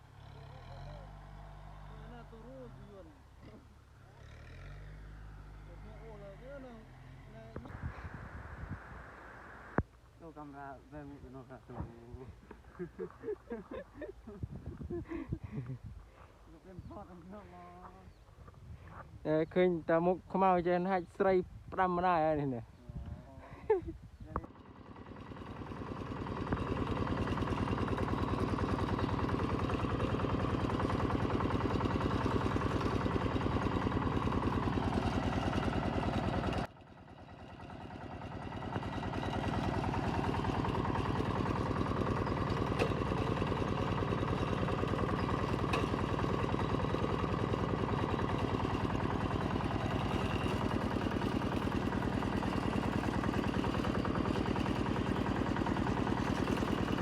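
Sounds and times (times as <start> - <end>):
tractor diesel engine running: 0.0 - 8.7, 24.1 - 57.0.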